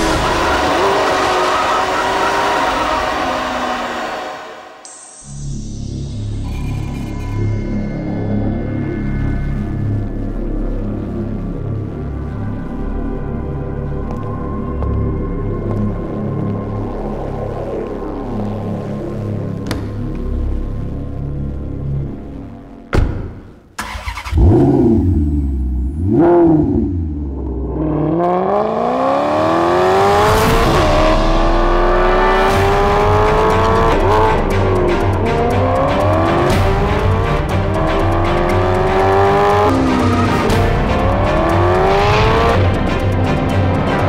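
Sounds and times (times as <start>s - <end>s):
background music with steady beat: 0.0s - 23.7s, 29.0s - 44.0s
sports car engine revving: 24.1s - 44.0s.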